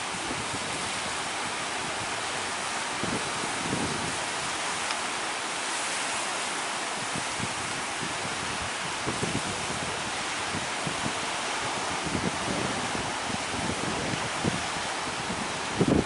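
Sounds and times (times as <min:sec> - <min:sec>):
sea surf and breaking waves: 0:00.0 - 0:16.0
wind buffeting the microphone: 0:00.0 - 0:16.0.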